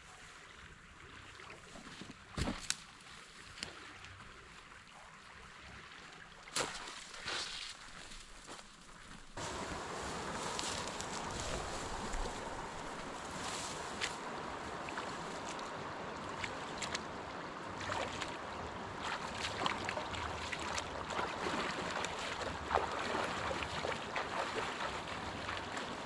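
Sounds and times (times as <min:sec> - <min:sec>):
river water rushing: 0:09.4 - 0:26.0
short splashes and ticks: 0:14.8 - 0:26.0.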